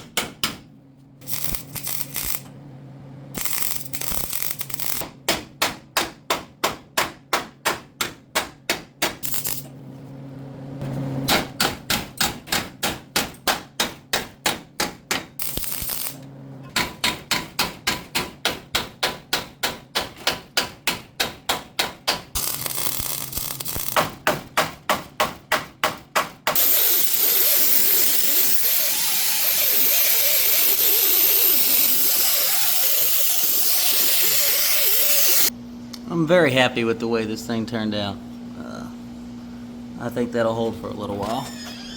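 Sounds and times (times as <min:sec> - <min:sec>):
shop tool rushing noise: 0:01.2 - 0:02.4, 0:26.6 - 0:35.5.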